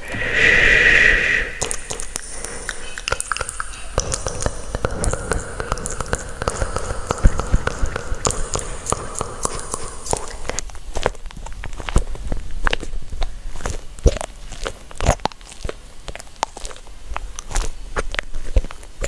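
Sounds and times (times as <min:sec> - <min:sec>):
hiss: 0:00.0 - 0:10.6.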